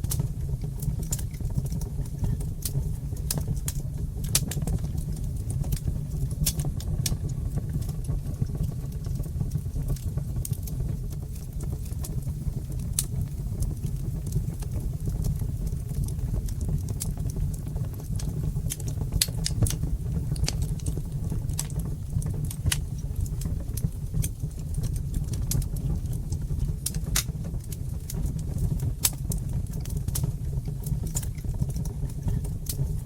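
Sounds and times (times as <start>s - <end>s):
fire pops and snaps: 0.0s - 33.0s
low rumble of flames: 0.0s - 33.0s.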